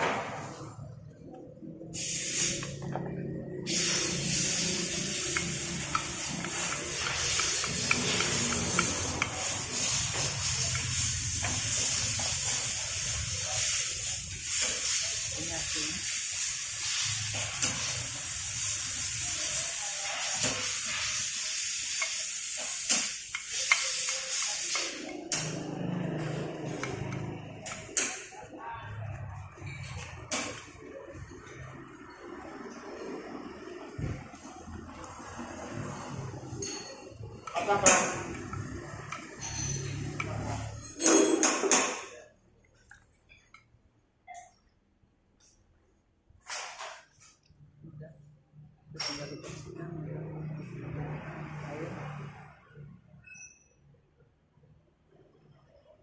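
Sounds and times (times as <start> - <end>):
spray nozzle hissing: 1.9 - 2.8, 3.7 - 28.2.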